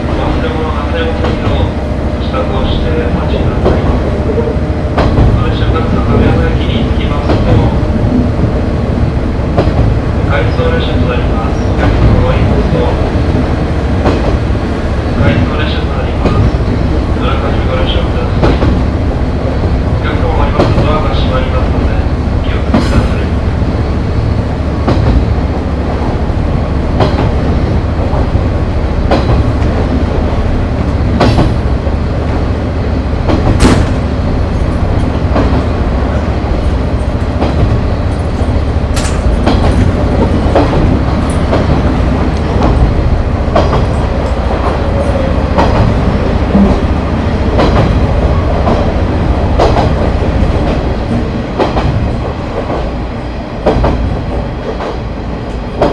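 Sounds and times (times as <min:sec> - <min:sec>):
diesel railcar rumble: 0:00.0 - 0:55.9
wheels clacking over rail joints: 0:33.2 - 0:53.0.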